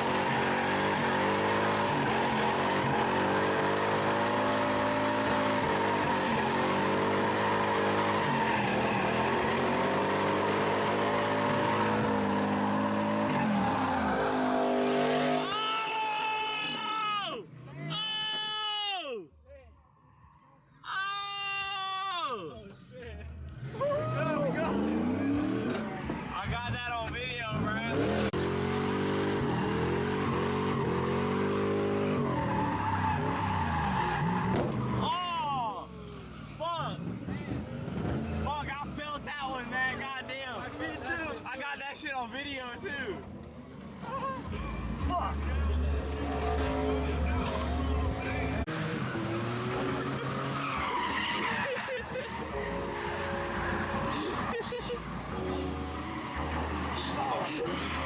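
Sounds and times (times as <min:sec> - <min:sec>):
car engine at high revs: 0:00.0 - 0:15.7, 0:23.5 - 0:26.4, 0:27.2 - 0:35.0, 0:44.5 - 0:58.0
tyres squealing: 0:46.2 - 0:58.0.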